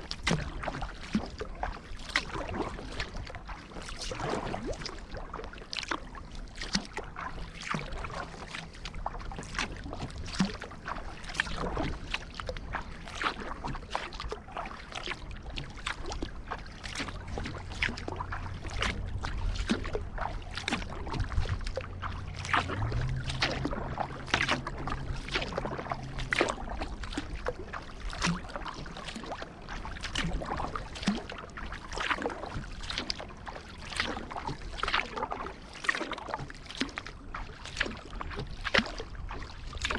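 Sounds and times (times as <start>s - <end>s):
paddle strokes splashing in water: 0.0s - 39.9s
water dripping off paddle: 6.6s - 39.9s.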